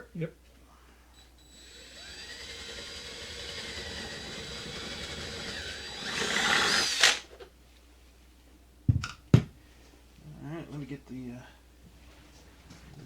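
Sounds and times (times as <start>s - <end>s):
electric drill boring into wood: 1.4s - 7.2s.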